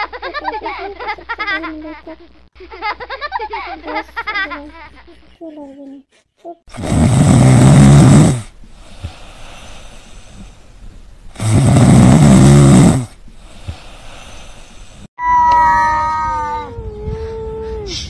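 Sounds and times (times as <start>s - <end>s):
loud snoring: 6.7s - 8.5s, 11.4s - 13.2s.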